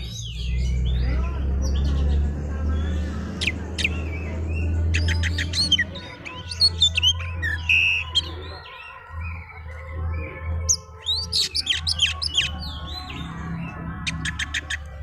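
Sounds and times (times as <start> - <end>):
songbird singing whistles and chirps: 0.0 - 2.2, 2.8 - 15.0.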